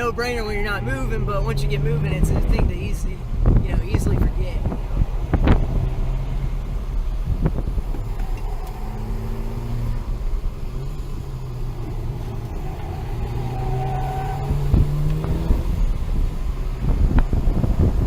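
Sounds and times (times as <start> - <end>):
car engine accelerating: 0.0 - 18.0
road noise: 0.0 - 18.0.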